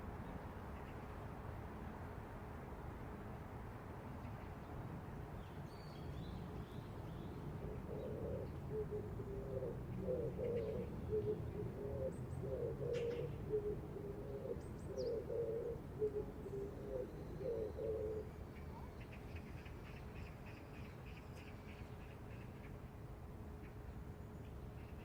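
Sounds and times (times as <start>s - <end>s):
pigeon cooing: 7.6s - 18.3s.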